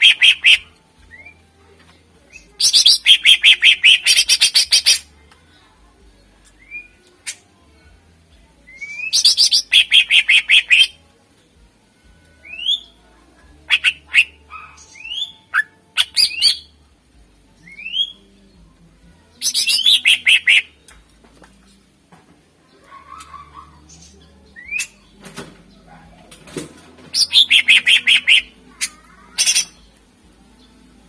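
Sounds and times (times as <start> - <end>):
bird singing rapid notes: 0.0 - 1.3, 2.6 - 5.0, 8.8 - 11.0, 19.4 - 20.7, 27.1 - 29.9.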